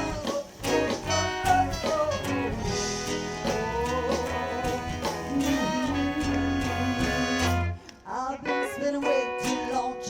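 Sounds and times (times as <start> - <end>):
bass and drums: 0.0 - 7.8
strummed guitar: 0.0 - 10.0.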